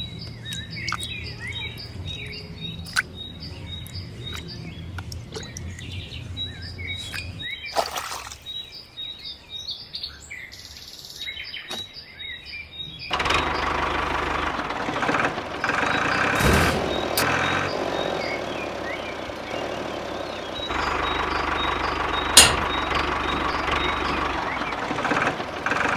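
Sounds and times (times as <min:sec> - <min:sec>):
birds chirping: 0:00.0 - 0:13.8, 0:15.7 - 0:25.1
small diesel engine running: 0:13.1 - 0:25.9
sharp click: 0:22.4 - 0:22.8.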